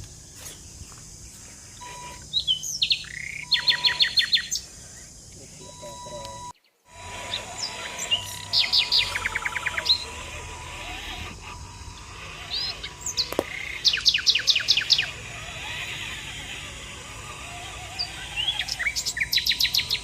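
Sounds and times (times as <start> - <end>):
songbirds chirping and trilling: 0.0 - 20.0
faint steady tone: 1.3 - 6.6.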